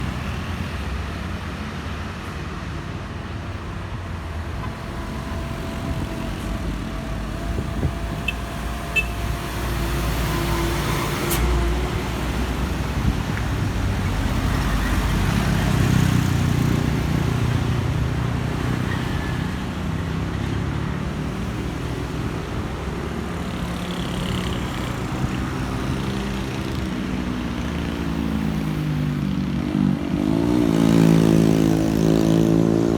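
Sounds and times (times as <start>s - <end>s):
diesel engines rumbling: 0.0s - 32.9s.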